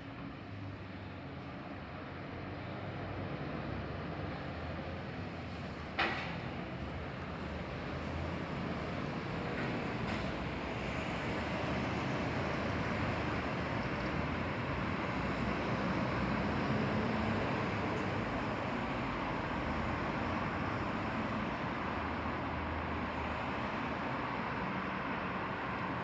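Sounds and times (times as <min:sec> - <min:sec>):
road vehicle rumble and hiss: 0:00.0 - 0:26.0.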